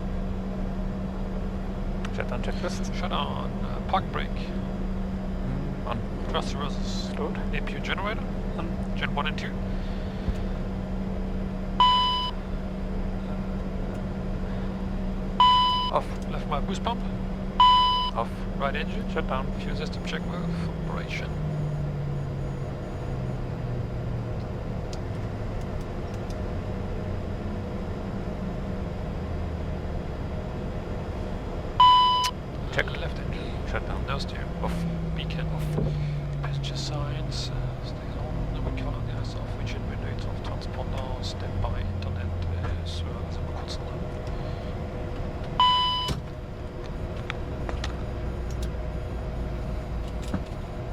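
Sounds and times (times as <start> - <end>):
cockpit hum: 0.0 - 50.9
electronic beep: 11.8 - 12.4, 15.4 - 16.0, 17.6 - 18.2, 31.8 - 32.3, 45.6 - 46.2.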